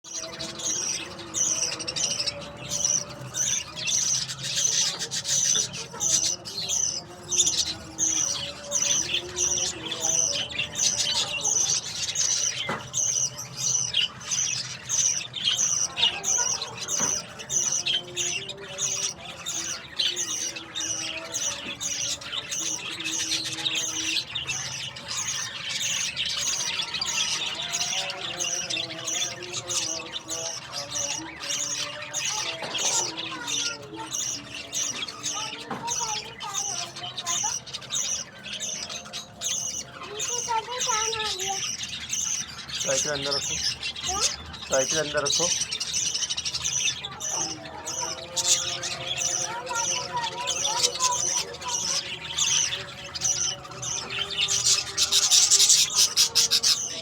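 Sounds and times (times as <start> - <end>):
chicks cheeping raspily: 0.0 - 57.0.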